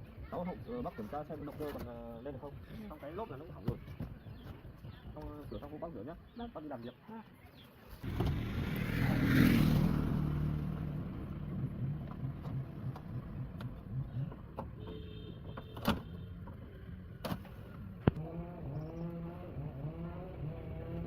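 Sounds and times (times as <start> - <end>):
car engine idling: 8.0 - 15.6.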